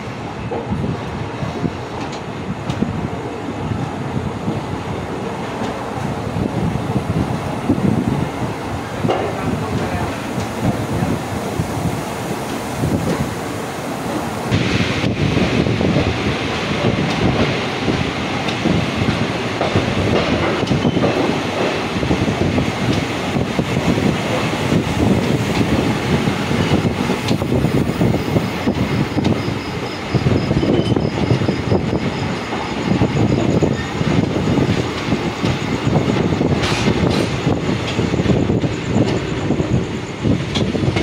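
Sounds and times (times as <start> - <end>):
clickety-clack over rail joints: 0.0 - 41.0
wheels rumbling on track: 0.0 - 41.0.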